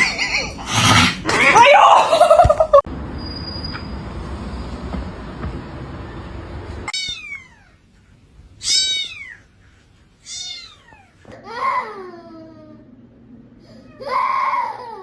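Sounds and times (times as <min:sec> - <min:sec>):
cat meowing: 0:06.9 - 0:07.8, 0:08.6 - 0:09.5, 0:10.2 - 0:11.2.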